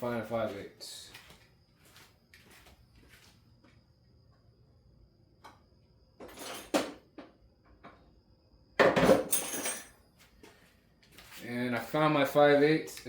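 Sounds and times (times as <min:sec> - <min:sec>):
metal tools clinking in toolbox: 0:06.2 - 0:06.9, 0:09.0 - 0:10.0.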